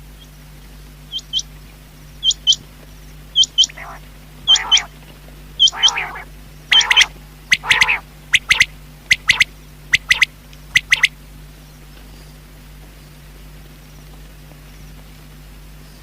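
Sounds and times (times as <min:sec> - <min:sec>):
harsh grating bird calls: 0:02.1 - 0:02.6, 0:03.3 - 0:05.0, 0:05.6 - 0:11.1
quail calling high notes: 0:03.4 - 0:05.0, 0:05.6 - 0:11.1.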